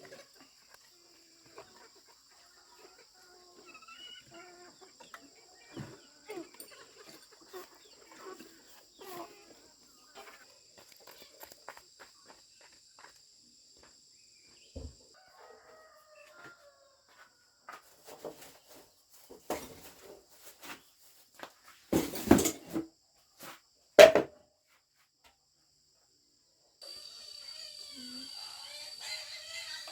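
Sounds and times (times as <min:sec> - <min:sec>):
chickens calling: 0:00.0 - 0:10.5, 0:26.9 - 0:29.9
high insect trill: 0:26.8 - 0:29.9.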